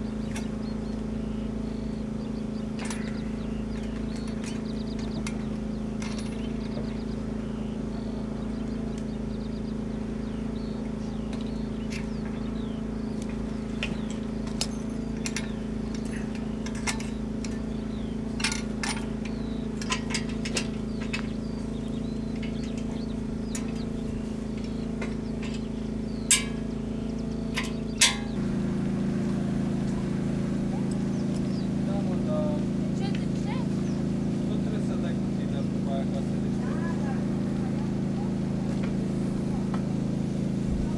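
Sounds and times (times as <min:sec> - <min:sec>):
motor humming: 0:00.0 - 0:40.9
sharp clicks and clinks: 0:14.5 - 0:17.7, 0:26.3 - 0:26.7, 0:27.5 - 0:28.4.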